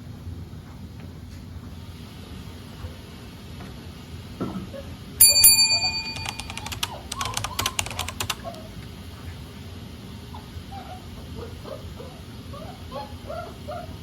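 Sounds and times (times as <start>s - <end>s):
rapid metal rattling and clicking: 6.2s - 8.5s.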